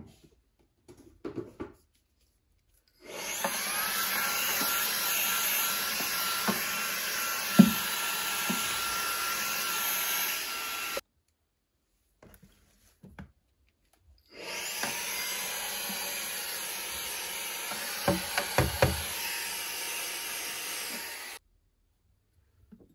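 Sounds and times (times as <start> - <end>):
vacuum cleaner whine: 3.0 - 11.0, 14.3 - 21.4
vacuum knocking against things: 7.4 - 8.7, 17.7 - 19.2.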